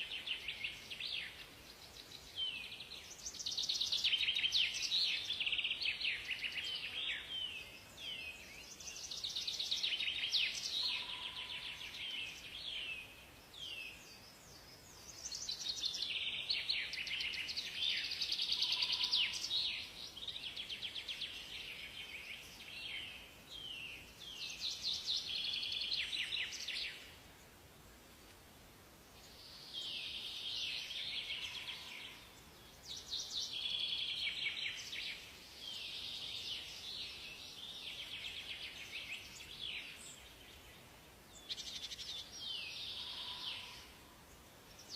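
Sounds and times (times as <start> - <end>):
songbirds chirping and trilling: 0.0 - 44.9.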